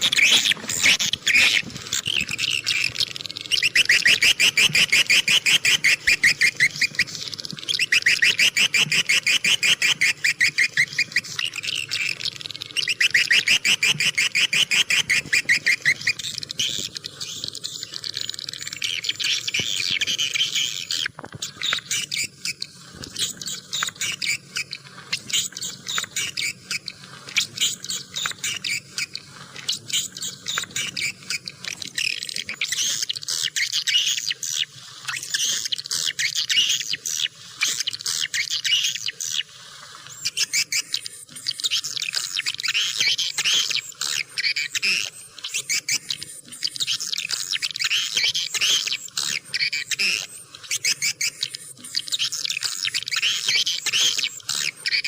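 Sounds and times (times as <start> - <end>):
swiftlets twittering: 0.0 - 39.4.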